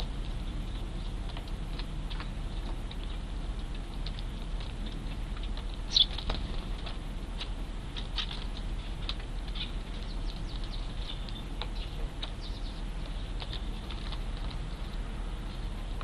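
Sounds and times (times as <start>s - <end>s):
sparrows chirping: 5.4s - 6.6s, 7.4s - 15.7s.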